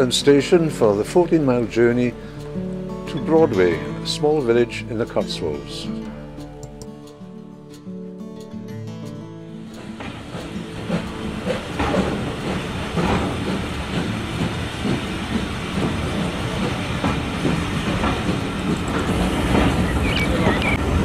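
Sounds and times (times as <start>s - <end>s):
train wheels rumbling: 0.0s - 6.0s, 9.6s - 21.0s
clatter and knocks over rails: 9.8s - 20.0s.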